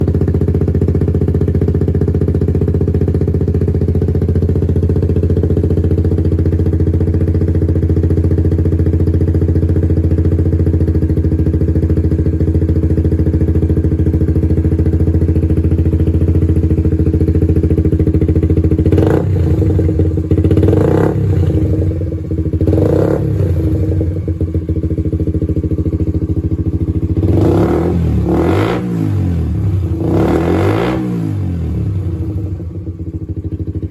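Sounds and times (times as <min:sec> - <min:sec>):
motorcycle engine idling: 0:00.0 - 0:33.9
engine revving: 0:18.9 - 0:22.0, 0:22.6 - 0:24.1, 0:27.2 - 0:32.6.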